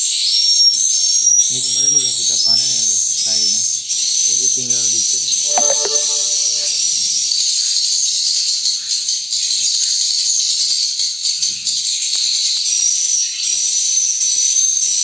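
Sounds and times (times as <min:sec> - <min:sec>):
swiftlets twittering: 0:01.4 - 0:07.2
thin steady high tone: 0:01.4 - 0:07.2.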